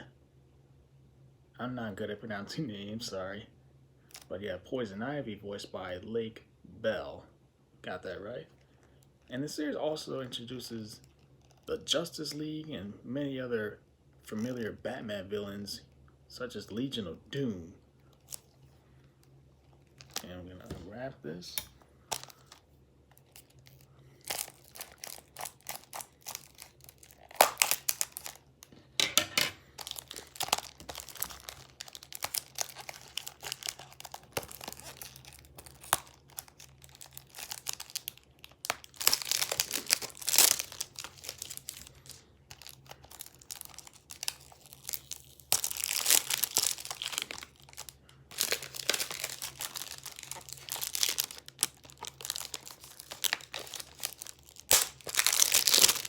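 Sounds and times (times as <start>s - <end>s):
plastic shrink-wrap crinkling: 18.1s - 18.7s, 19.6s - 20.4s, 22.1s - 29.0s, 29.6s - 56.0s.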